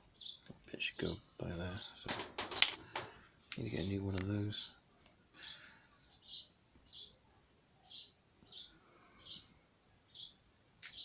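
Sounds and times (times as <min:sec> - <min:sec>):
small bird chirping: 0:00.0 - 0:00.5, 0:03.6 - 0:11.0.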